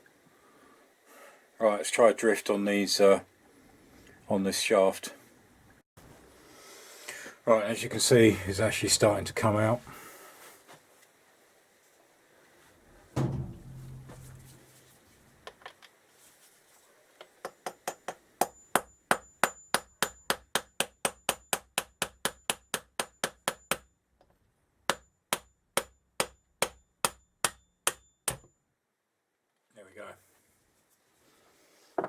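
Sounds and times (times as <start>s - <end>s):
hammer tapping metal: 12.9s - 14.9s
heavy metal knock: 12.9s - 15.0s.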